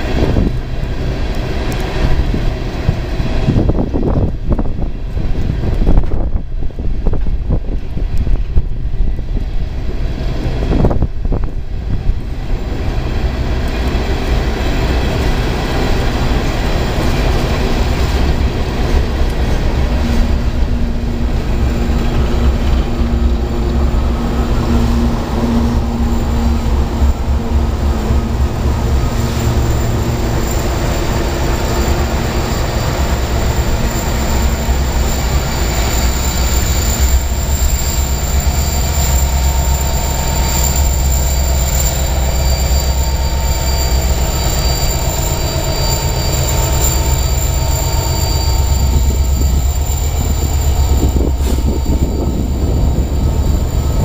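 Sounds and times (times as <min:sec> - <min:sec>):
train wheels rumbling and clattering: 0:00.0 - 0:54.0
whining wheel tones: 0:21.7 - 0:54.0.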